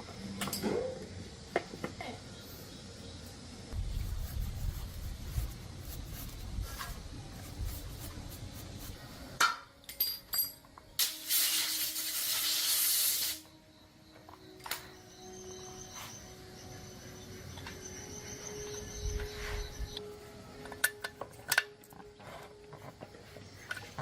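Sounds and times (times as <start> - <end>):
rubbing and handling noise: 3.8 - 9.0
metallic clicks and clinks: 9.8 - 10.8
spray hissing: 11.0 - 13.4.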